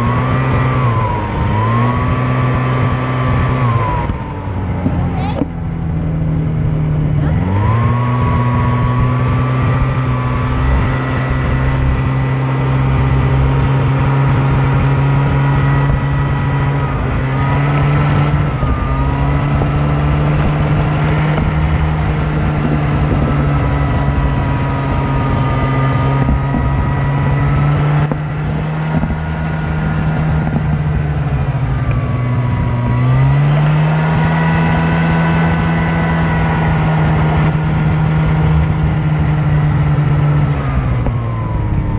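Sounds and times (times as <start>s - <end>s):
snowmobile engine revving: 0.0s - 41.9s.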